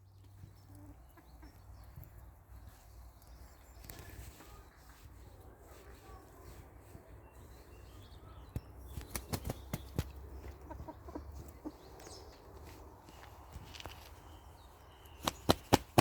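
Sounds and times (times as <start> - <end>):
chickens clucking: 0.2 - 4.6, 7.3 - 13.6.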